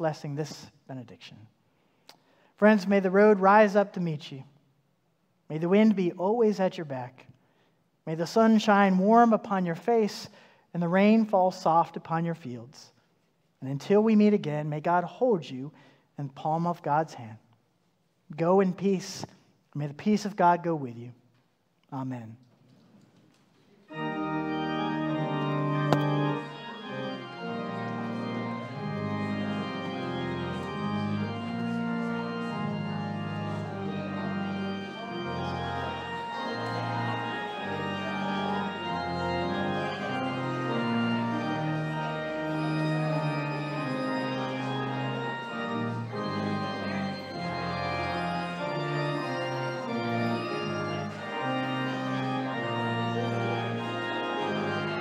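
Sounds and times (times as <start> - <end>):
organ playing slow chords: 23.8 - 55.0.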